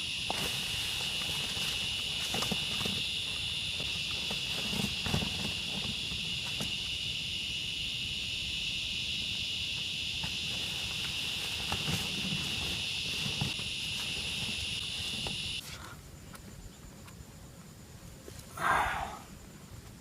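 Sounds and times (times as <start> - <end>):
high-pitched insect chorus: 0.0 - 20.0
soft steps or rustles: 0.3 - 6.8, 10.2 - 18.5.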